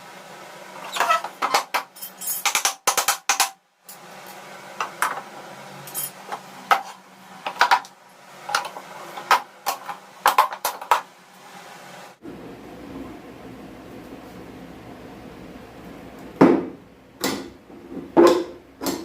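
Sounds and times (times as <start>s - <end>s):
metal parts clinking: 1.9s - 2.6s, 5.8s - 6.2s
low steady hum: 11.2s - 19.0s.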